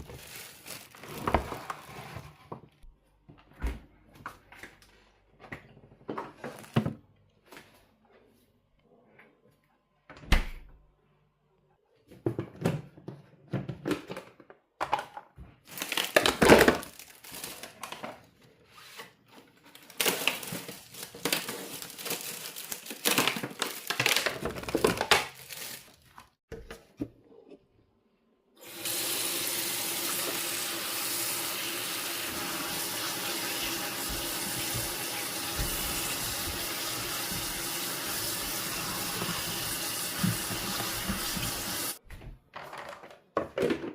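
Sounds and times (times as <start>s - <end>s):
water running into a sink: 28.6s - 42.0s
clatter of things being handled: 42.5s - 43.9s.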